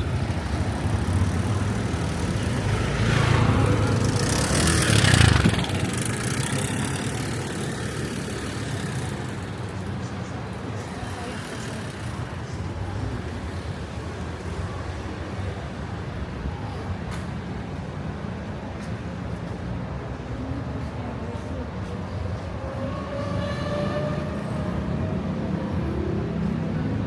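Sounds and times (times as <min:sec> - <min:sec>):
vehicle passing by: 0:00.0 - 0:09.5, 0:22.6 - 0:26.4
low rumble of traffic: 0:00.0 - 0:27.0.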